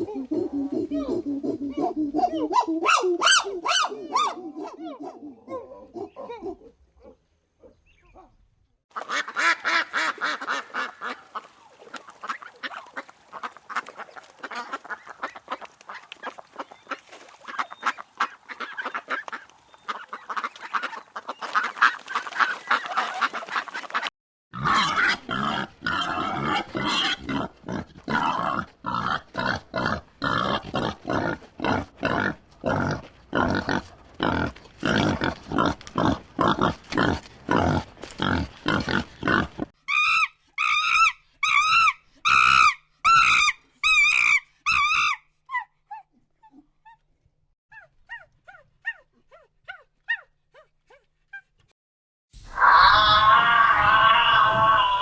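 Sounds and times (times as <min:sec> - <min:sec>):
waterfowl calling: 0:09.0 - 0:24.1.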